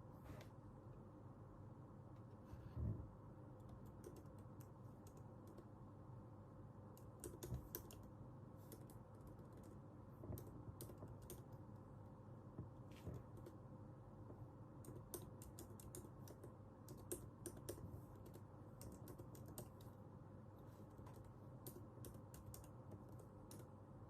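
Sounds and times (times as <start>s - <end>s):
keyboard typing: 3.5s - 5.8s, 6.9s - 11.8s, 12.6s - 13.7s, 14.8s - 20.0s, 20.8s - 23.8s.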